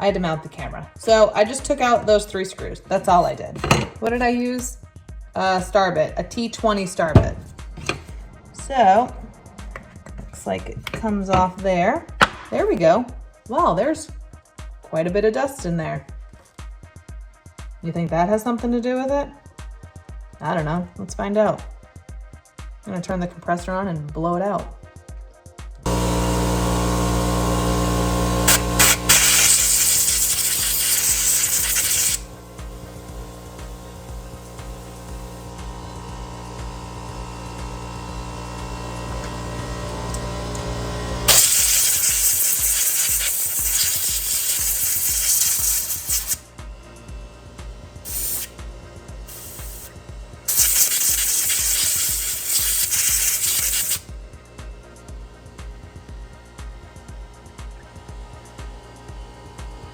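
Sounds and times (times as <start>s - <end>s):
compressed air hissing: 7.0s - 11.6s, 25.9s - 39.7s, 41.2s - 46.5s, 48.0s - 48.6s, 49.3s - 54.1s
air compressor running: 7.1s - 11.5s, 25.9s - 59.9s.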